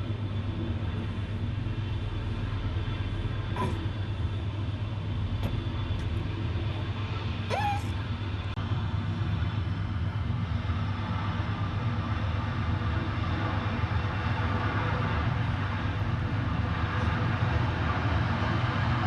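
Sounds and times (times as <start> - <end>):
gas fire roaring and hissing: 0.0 - 19.0.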